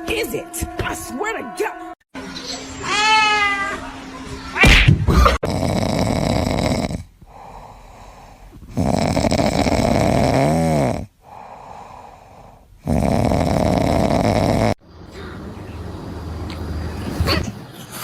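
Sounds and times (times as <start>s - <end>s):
pet snoring: 5.4s - 7.6s, 8.6s - 11.5s, 12.3s - 14.8s.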